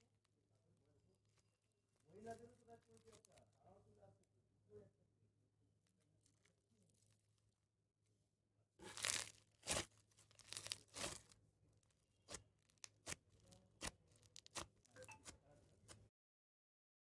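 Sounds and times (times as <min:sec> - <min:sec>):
foam beads popping: 0:08.8 - 0:11.3
slime squelching: 0:08.8 - 0:16.1.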